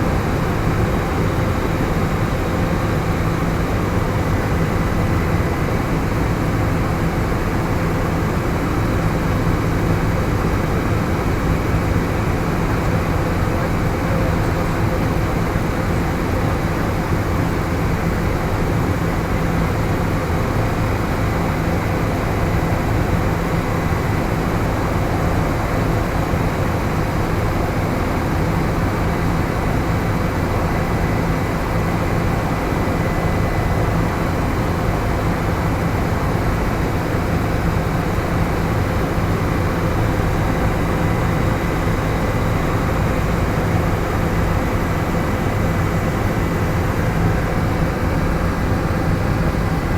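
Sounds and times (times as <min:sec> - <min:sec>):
helicopter engine and rotor drone: 0:00.0 - 0:49.9.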